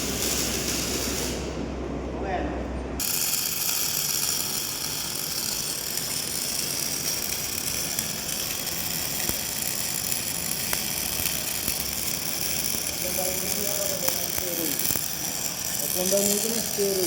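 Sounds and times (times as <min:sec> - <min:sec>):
welding arc crackling hiss: 0:00.0 - 0:01.6, 0:03.0 - 0:17.0.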